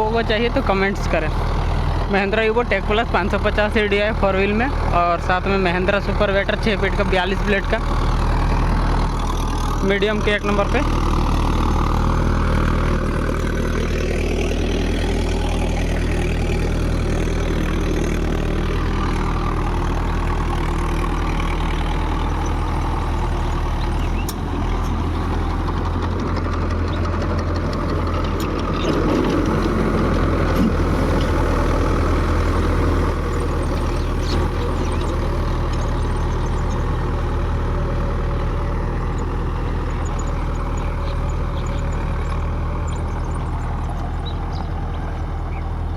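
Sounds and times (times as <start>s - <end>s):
tractor diesel engine under load: 0.0s - 45.9s.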